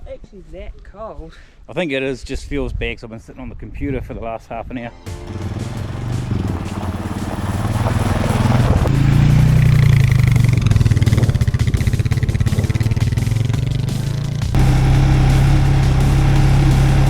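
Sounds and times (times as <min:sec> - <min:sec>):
tractor diesel engine running: 0:05.1 - 0:17.0.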